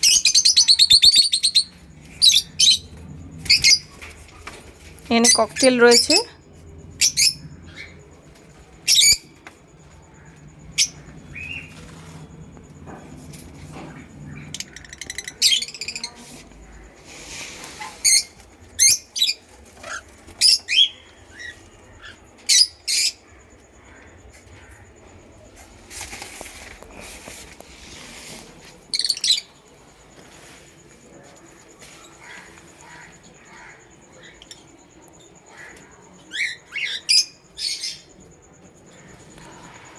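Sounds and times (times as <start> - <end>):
birds giving high-pitched calls: 0.0 - 8.1, 8.8 - 9.4, 14.2 - 25.0, 28.9 - 29.6, 31.9 - 38.2
wings fluttering: 6.7 - 22.6, 23.9 - 33.7.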